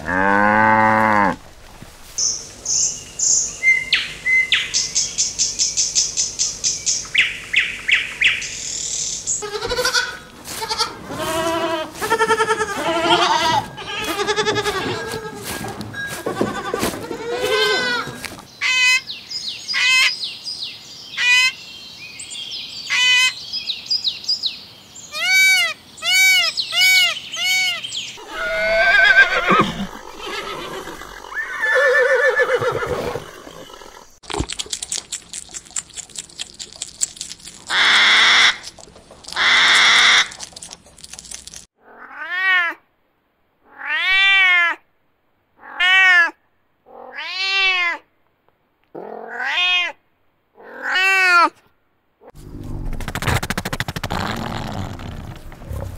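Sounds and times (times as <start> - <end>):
animal calls: 25.1 - 41.1.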